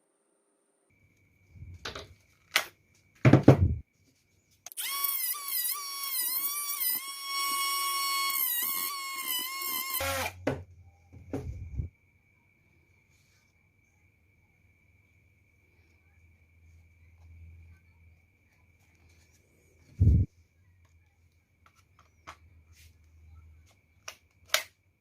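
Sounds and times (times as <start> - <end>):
knocks and thump: 3.2 - 3.8, 10.4 - 11.9
cordless drill motor whine: 4.7 - 10.4.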